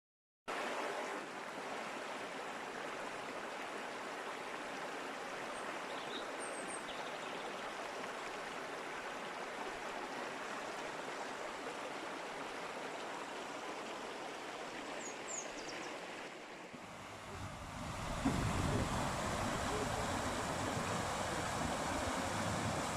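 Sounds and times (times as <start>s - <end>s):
river rushing over rocks: 16.3s - 22.9s.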